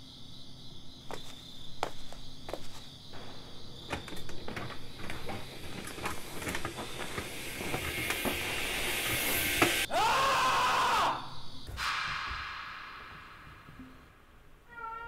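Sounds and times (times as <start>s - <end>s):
crickets chirping: 0.0s - 15.0s
high hiss: 3.2s - 14.7s.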